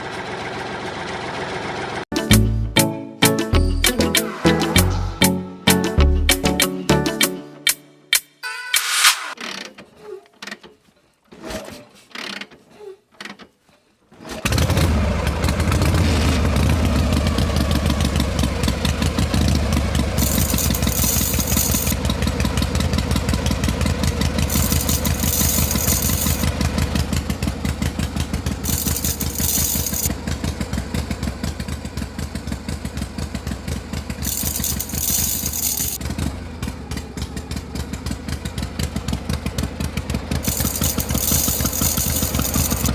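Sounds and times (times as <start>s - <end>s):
engine chugging: 14.5s - 42.9s.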